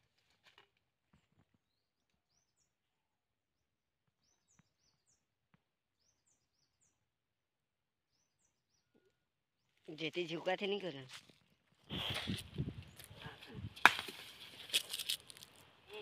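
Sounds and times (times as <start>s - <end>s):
birdsong: 1.1s - 11.1s, 11.8s - 13.7s.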